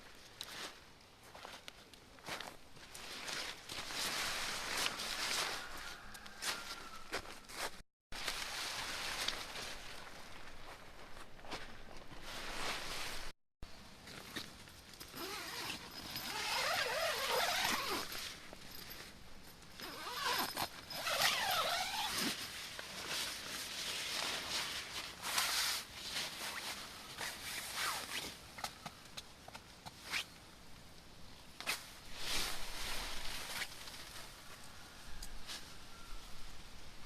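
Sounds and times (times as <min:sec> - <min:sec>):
fabric rustling: 0:07.6 - 0:13.4
zipper-like rasps: 0:15.1 - 0:18.1, 0:19.8 - 0:22.4, 0:27.2 - 0:28.3.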